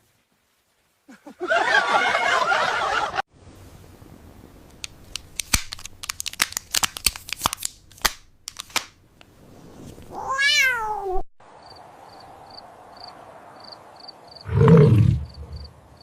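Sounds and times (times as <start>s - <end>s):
cat meowing: 10.1s - 11.2s.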